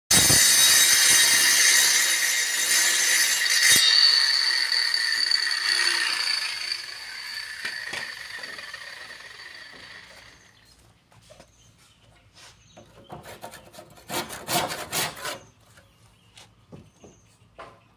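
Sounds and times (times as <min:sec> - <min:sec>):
power saw cutting wood: 0:00.1 - 0:10.7.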